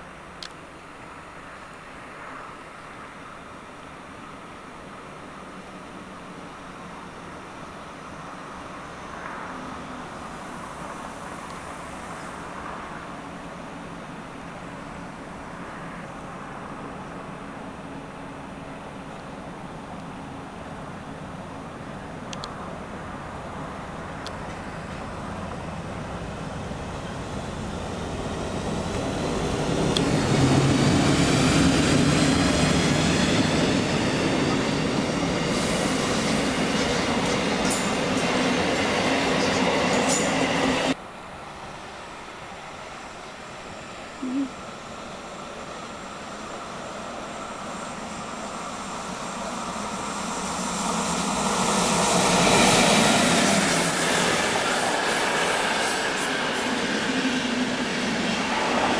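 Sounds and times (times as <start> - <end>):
train wheels rumbling on rails: 22.5 - 41.0, 45.3 - 58.9
high-pitched wheel squeal: 53.8 - 56.8.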